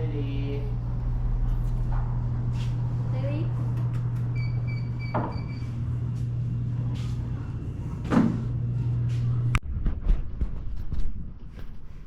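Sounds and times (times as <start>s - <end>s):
engine humming: 0.0s - 9.6s.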